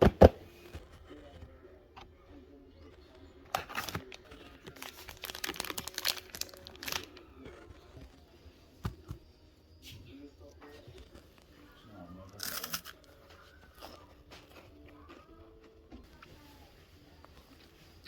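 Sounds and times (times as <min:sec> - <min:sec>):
plastic wrapper crinkling: 0:03.5 - 0:08.2.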